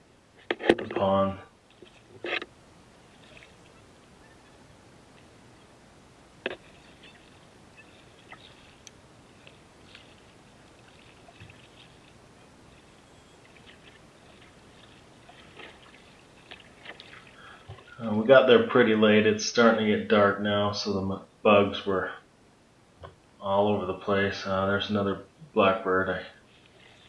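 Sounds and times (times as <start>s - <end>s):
soft paddle splashes and drips: 3.0s - 3.8s, 6.5s - 18.0s.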